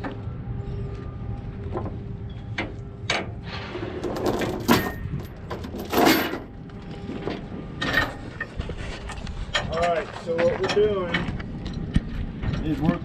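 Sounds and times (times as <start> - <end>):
steady low rumble: 0.0 - 13.0
metal chain clinking: 4.0 - 6.5, 10.6 - 13.0.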